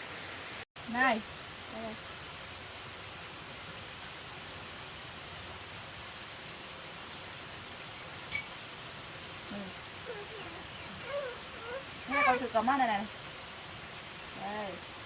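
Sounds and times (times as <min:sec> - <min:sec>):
outdoor hiss: 0:00.0 - 0:15.0.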